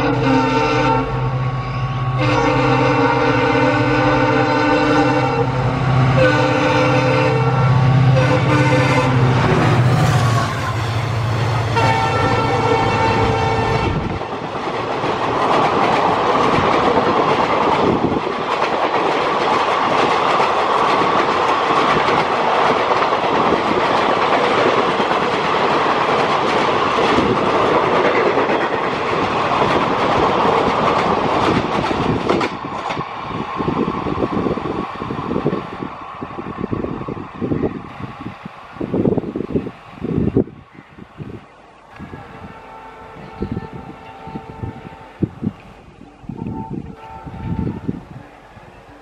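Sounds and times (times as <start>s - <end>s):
train horn: 0.0s - 14.2s, 42.0s - 45.5s, 46.3s - 49.0s
train wheels rushing on rails: 0.0s - 49.0s.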